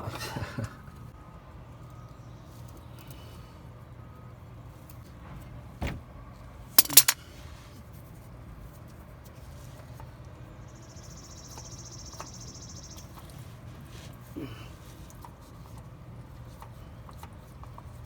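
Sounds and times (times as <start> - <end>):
sharp metal clicks of pliers: 6.8 - 7.2.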